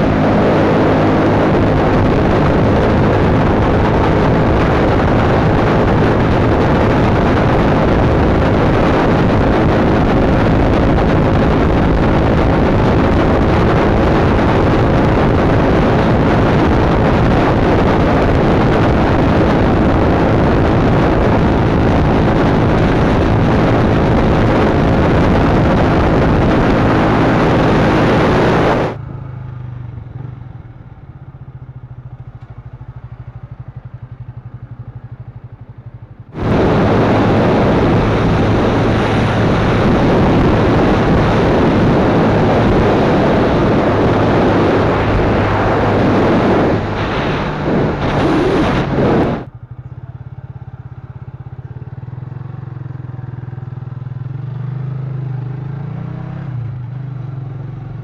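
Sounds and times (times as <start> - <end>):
wind rushing over microphone: 0.0 - 29.2, 31.7 - 49.7
motorcycle engine humming: 0.0 - 58.0.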